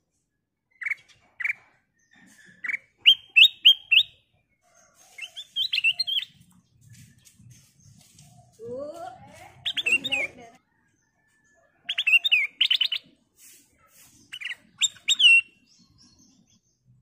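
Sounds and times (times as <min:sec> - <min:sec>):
bird whistling and chattering: 0:00.7 - 0:01.6, 0:02.2 - 0:04.2, 0:05.2 - 0:06.4, 0:09.6 - 0:10.4, 0:11.9 - 0:13.2, 0:14.2 - 0:15.7.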